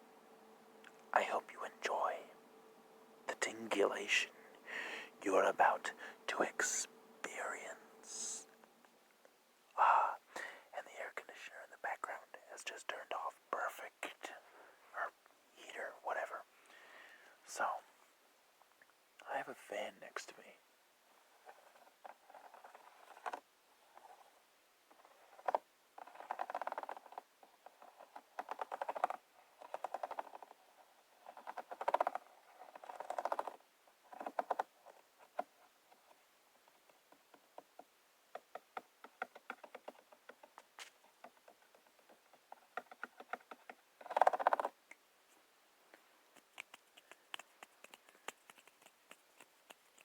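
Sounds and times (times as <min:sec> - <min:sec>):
object crackling and clicking: 0:24.9 - 0:30.6, 0:31.2 - 0:35.5, 0:38.3 - 0:45.0, 0:46.3 - 0:50.0.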